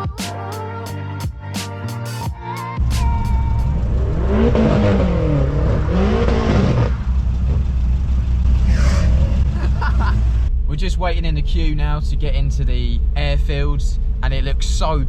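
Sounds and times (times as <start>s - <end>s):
car engine revving: 2.8s - 14.8s.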